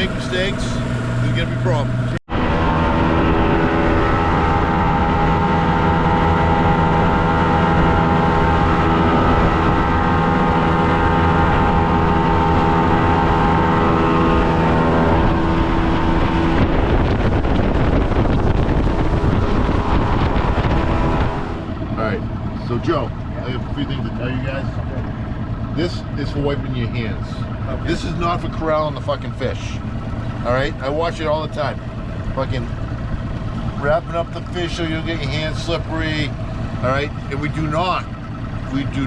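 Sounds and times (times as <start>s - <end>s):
motorboat engine drone: 0.0s - 39.0s
wind and water rushing: 2.3s - 23.3s.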